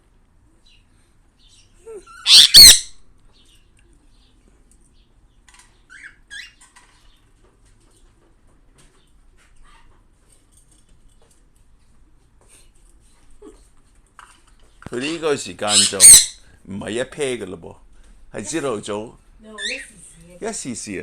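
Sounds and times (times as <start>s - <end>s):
faint bird chirps: 0.6s - 5.1s
bird squawking: 2.2s - 3.0s, 15.0s - 16.5s.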